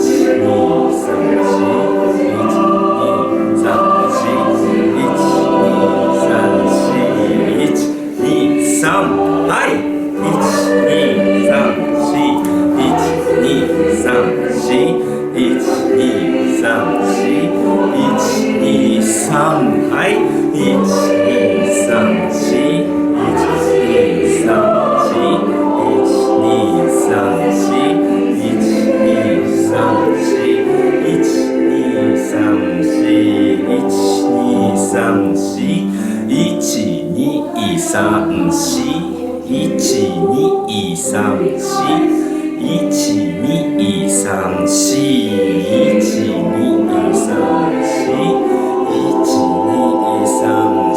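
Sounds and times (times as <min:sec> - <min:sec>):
choir singing: 0:00.0 - 0:50.9.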